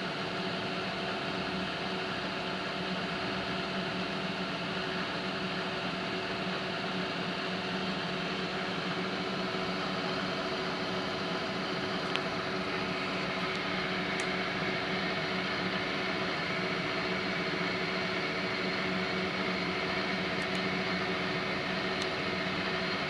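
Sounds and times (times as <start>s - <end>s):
milling machine humming: 3.0s - 23.0s.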